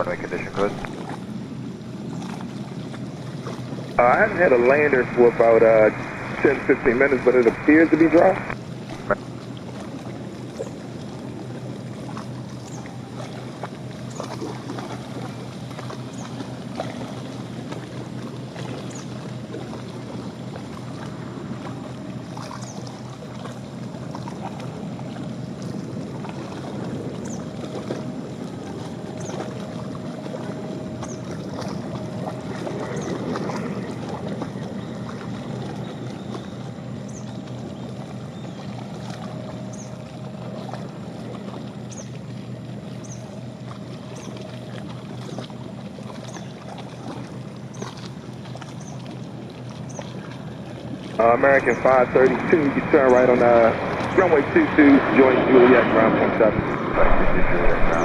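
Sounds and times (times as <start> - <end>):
faint steady whine: 0.0 - 58.0
wind: 0.0 - 58.0
rain: 3.8 - 12.5, 49.2 - 58.0.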